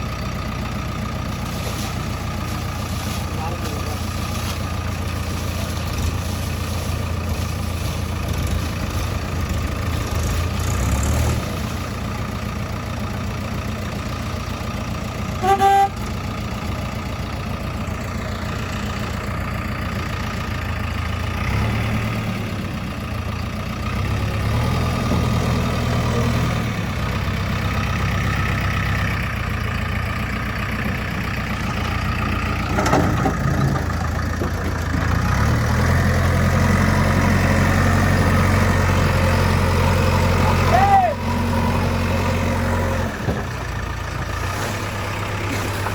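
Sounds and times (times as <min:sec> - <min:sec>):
diesel engine idling: 0:00.0 - 0:45.9
vehicle horn toot: 0:15.4 - 0:16.1.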